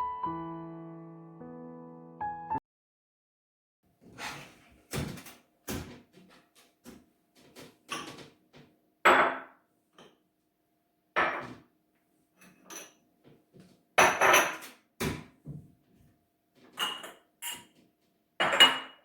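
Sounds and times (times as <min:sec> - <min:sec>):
cupboard doors and items knocking: 0:04.9 - 0:06.3, 0:14.0 - 0:15.8.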